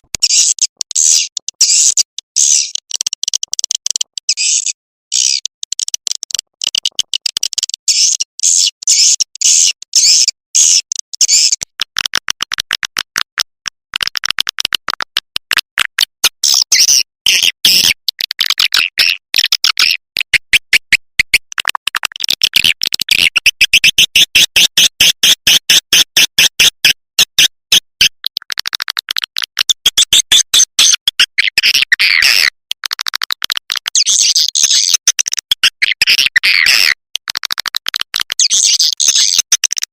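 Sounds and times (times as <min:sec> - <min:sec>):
swiftlet chirping chatter: 0:00.2 - 0:11.6, 0:38.4 - 0:39.5.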